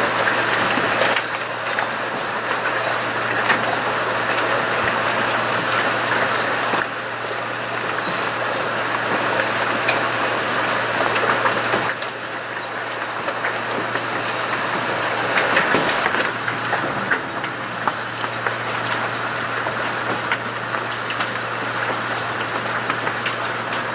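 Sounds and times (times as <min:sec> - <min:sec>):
heavy rain hissing: 0:12.4 - 0:23.9
hailstones clattering: 0:12.8 - 0:23.9.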